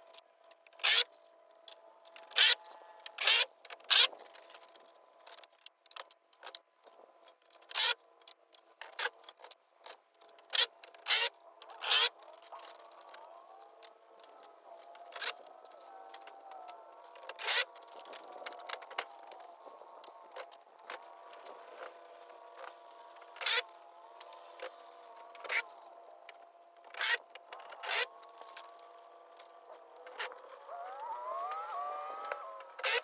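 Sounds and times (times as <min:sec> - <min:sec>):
faint hum with sliding tones: 0:10.3 - 0:33.0.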